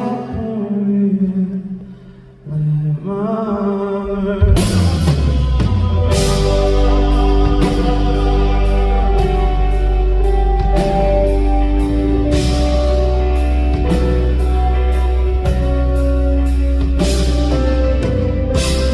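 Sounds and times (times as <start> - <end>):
live band playing rock ballad: 3.9 - 18.9.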